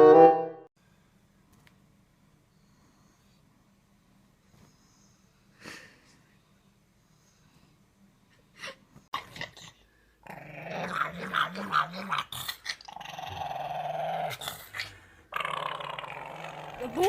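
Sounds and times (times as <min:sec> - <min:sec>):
dog growling: 0:09.2 - 0:17.0.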